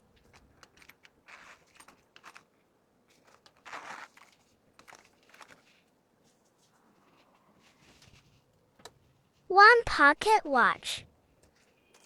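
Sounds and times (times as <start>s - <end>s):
small clicks of handled items: 0.1s - 5.9s, 11.4s - 12.0s
plastic packaging rustling: 0.2s - 5.9s.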